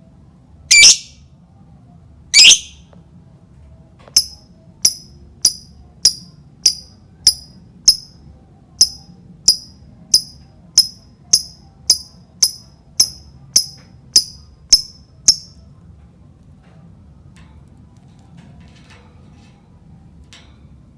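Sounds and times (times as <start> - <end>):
bird chirping high-pitched: 0.7 - 1.2, 2.4 - 2.8, 4.2 - 8.1, 8.8 - 15.6.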